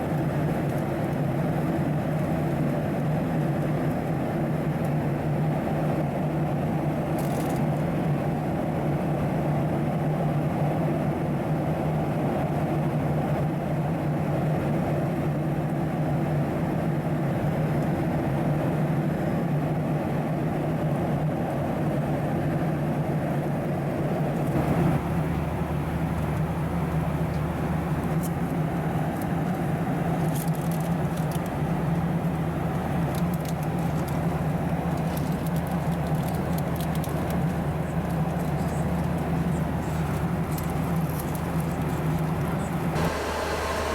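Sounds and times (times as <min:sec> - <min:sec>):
airplane cabin engine drone: 0:23.8 - 0:43.9.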